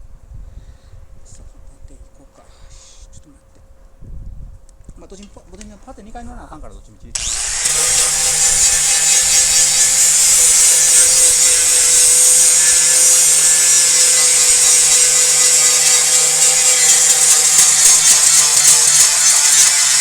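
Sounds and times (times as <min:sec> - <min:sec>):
power sander hissing on metal: 0:07.2 - 0:20.0.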